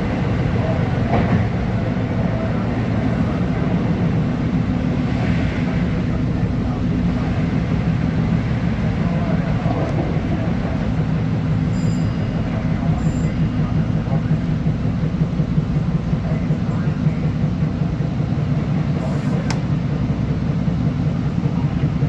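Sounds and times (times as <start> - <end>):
electric train rumbling on track: 0.0 - 22.0.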